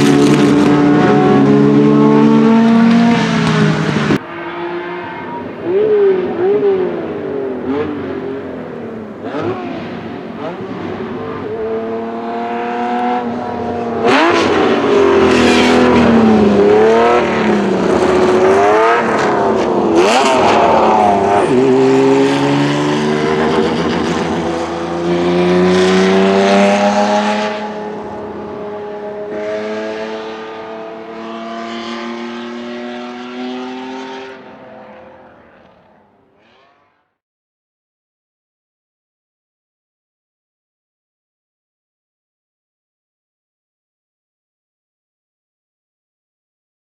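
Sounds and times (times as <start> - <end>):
racing car engine accelerating: 0.0 - 37.0.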